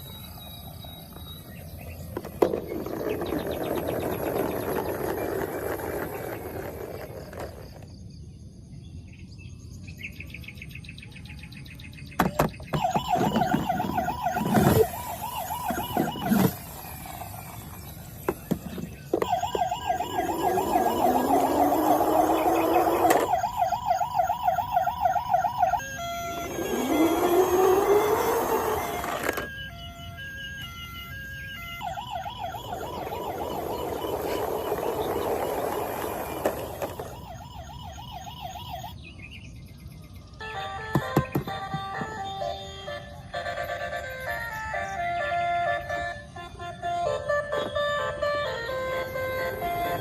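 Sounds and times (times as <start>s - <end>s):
toy siren warbling: 0.0s - 7.8s, 12.3s - 39.0s, 40.4s - 50.0s
toy handling knocks and clicks: 22.6s - 23.3s.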